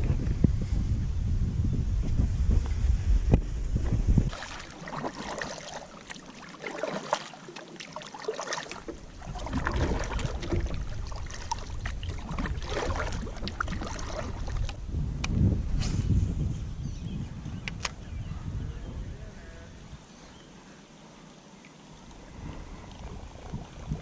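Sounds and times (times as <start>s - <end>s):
wind rumble on microphone: 0.0s - 5.3s, 9.0s - 20.1s, 22.0s - 24.0s
water splashing around a kayak: 4.2s - 14.9s, 21.7s - 24.0s.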